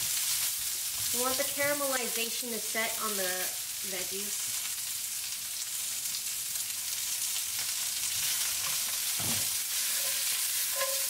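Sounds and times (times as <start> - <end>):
vegetables sizzling in oil: 0.0 - 11.0
pan scraping: 9.2 - 11.0.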